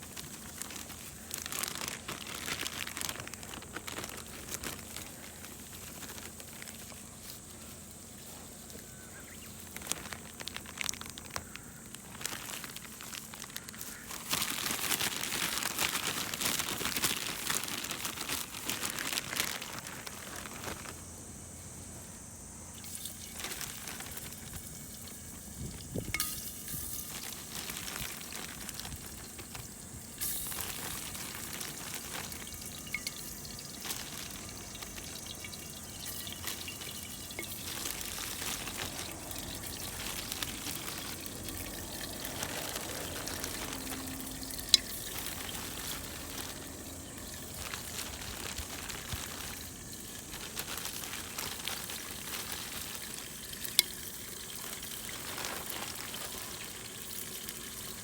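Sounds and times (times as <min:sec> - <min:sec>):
food sizzling in a pot: 0:24.0 - 0:27.5, 0:29.1 - 0:58.0
wood fire crackles: 0:28.8 - 0:56.3.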